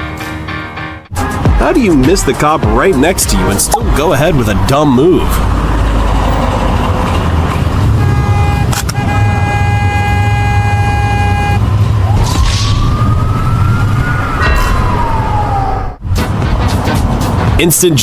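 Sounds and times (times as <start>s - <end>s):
road and engine rumble: 1.1s - 18.0s
police siren wailing: 8.8s - 16.0s.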